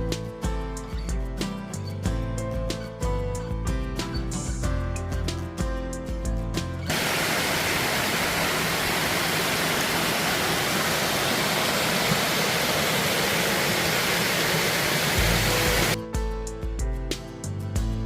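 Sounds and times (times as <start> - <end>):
stream water rushing: 6.9 - 16.0.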